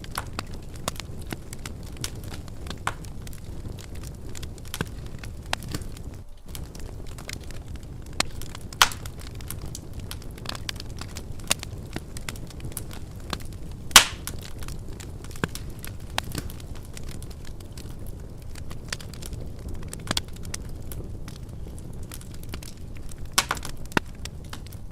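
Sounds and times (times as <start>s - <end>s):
wood fire crackling and popping: 0.0s - 24.9s.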